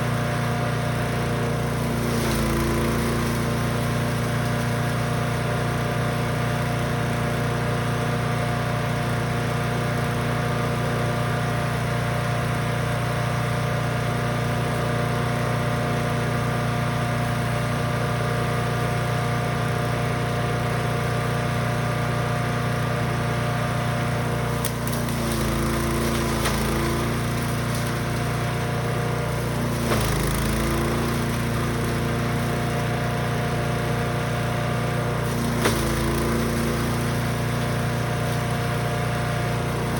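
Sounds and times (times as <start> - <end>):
wood chipper engine running: 0.0 - 39.9
knocks of material fed through: 1.7 - 5.2, 24.5 - 33.1, 35.2 - 39.9.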